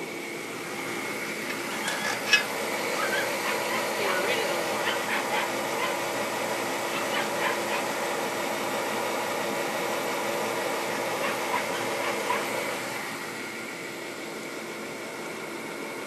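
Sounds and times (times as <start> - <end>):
kerosene heater rushing: 0.0 - 16.0
dog whimpering: 1.7 - 6.0, 6.9 - 7.9, 11.2 - 12.5.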